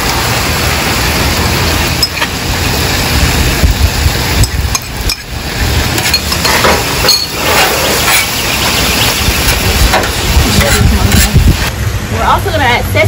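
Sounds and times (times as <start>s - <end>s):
food sizzling on griddle: 0.0s - 11.7s
metal spatula scraping griddle: 5.9s - 11.5s.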